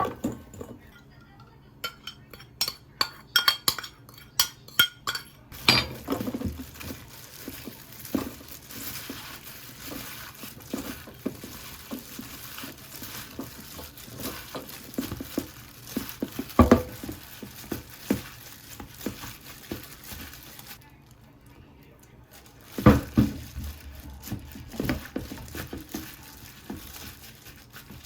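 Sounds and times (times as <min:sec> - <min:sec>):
utensil knocking and scraping pan: 0:00.0 - 0:00.9, 0:01.8 - 0:20.3.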